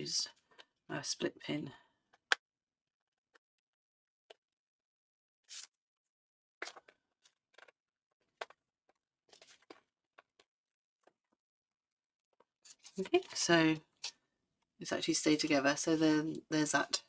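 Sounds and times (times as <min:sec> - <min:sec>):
paper rustling: 0:05.5 - 0:05.7, 0:06.6 - 0:08.6, 0:09.3 - 0:10.4, 0:12.6 - 0:13.4
card and paper clicks: 0:06.6 - 0:07.0.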